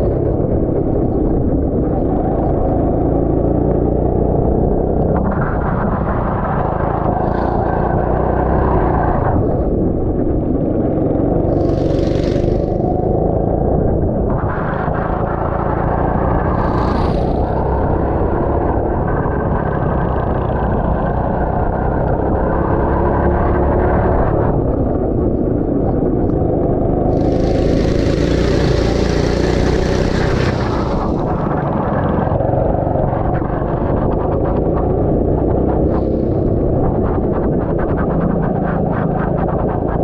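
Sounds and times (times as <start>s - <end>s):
go-kart engine revving: 6.6s - 9.2s, 10.3s - 14.0s, 14.7s - 24.4s, 26.4s - 36.9s
loud hissing noise: 11.4s - 13.0s, 16.4s - 17.8s, 27.1s - 31.6s.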